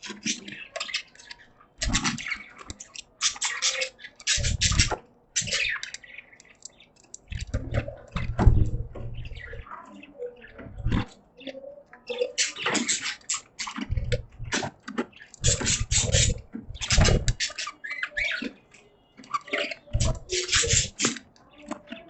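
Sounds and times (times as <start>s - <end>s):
budgies chattering and chirping: 0.0s - 22.0s
low thumps: 7.3s - 9.6s.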